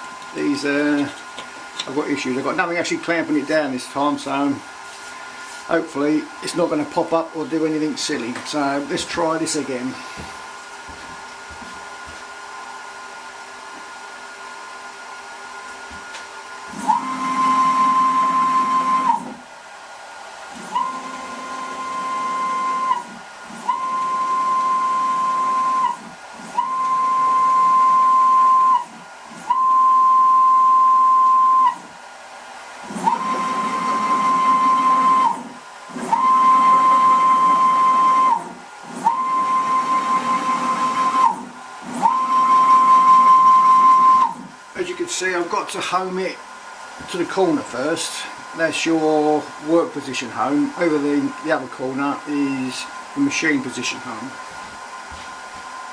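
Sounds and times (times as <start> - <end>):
stepper motors whining: 20.6 - 31.9, 32.8 - 44.5.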